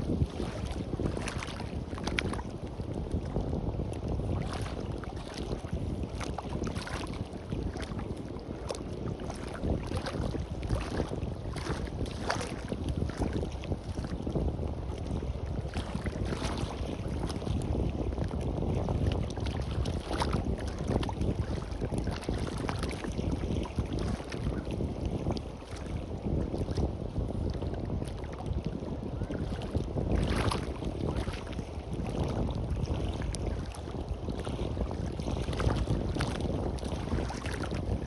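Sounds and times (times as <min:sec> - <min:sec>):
sea washing on a beach: 0:00.0 - 0:38.0
wind buffeting microphone: 0:00.0 - 0:38.0.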